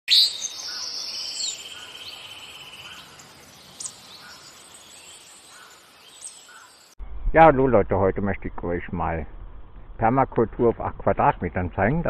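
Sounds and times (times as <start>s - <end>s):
bird trilling: 0.1s - 6.8s
bird chirps: 0.1s - 7.0s.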